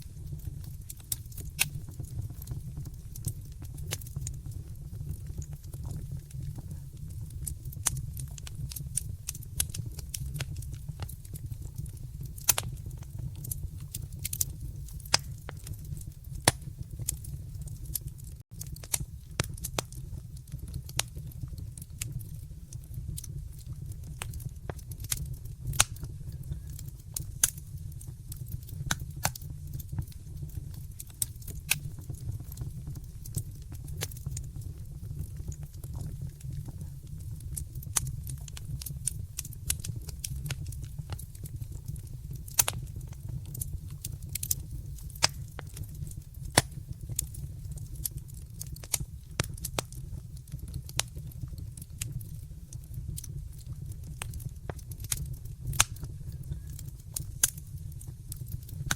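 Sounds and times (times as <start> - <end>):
wood fire crackling: 0.0 - 58.9.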